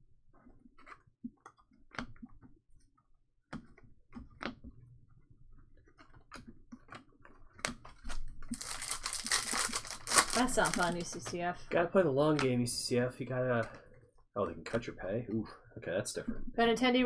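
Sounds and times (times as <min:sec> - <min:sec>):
trading cards being handled: 0:08.5 - 0:11.3.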